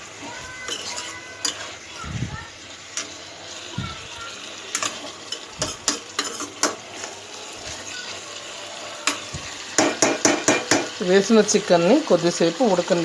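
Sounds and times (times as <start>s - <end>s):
chicken sizzling in oil: 0.0s - 13.0s
spoon scraping and knocking pan: 0.6s - 1.8s, 4.7s - 7.8s, 9.0s - 11.0s.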